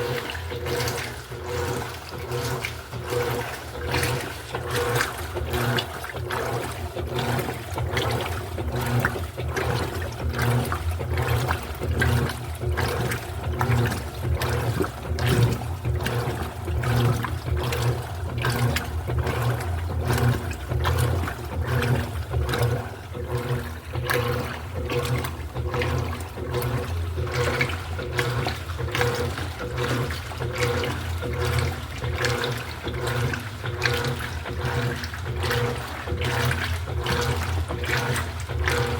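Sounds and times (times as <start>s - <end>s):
washing machine motor hum: 0.0s - 38.9s
water churning and sloshing: 0.0s - 38.9s.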